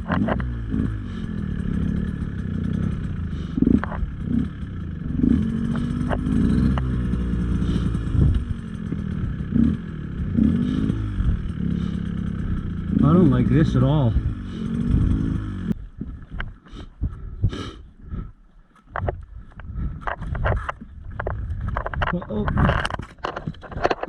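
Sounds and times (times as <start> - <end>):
clatter and knocks from bike: 0.0 - 1.9, 2.6 - 4.4, 18.8 - 24.0
dirt bike engine revving: 0.0 - 16.2.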